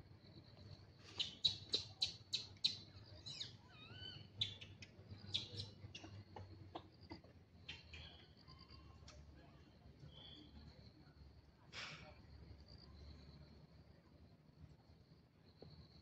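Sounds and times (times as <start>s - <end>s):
bird chirping and warbling: 1.2s - 6.1s.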